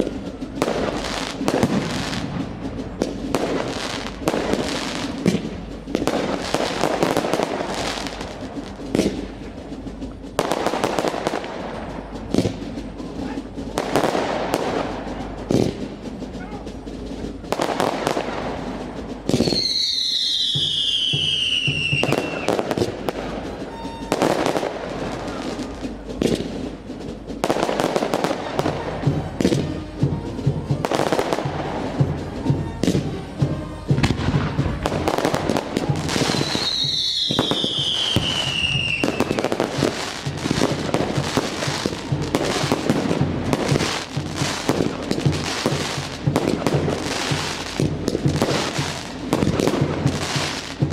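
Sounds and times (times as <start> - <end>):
fireworks bangs and crackling: 0.0 - 50.9
whistling firework shells: 17.4 - 26.8, 33.7 - 50.8.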